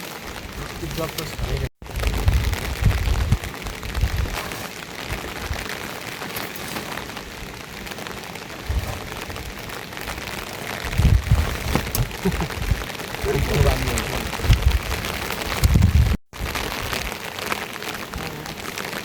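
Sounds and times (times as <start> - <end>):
rain falling: 0.0 - 19.0
low rumbles: 6.9 - 17.0.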